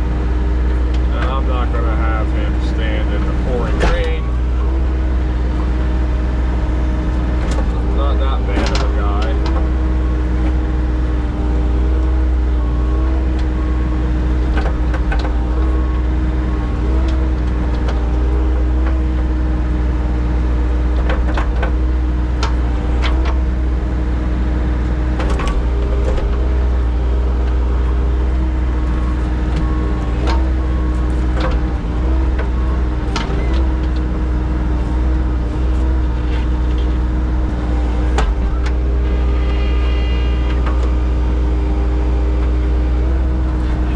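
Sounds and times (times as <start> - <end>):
digging machine engine humming: 0.0 - 43.9
machine knocks and clanks: 2.1 - 4.3, 7.4 - 9.8, 14.4 - 15.7, 20.8 - 23.6, 25.1 - 26.8, 28.9 - 34.2.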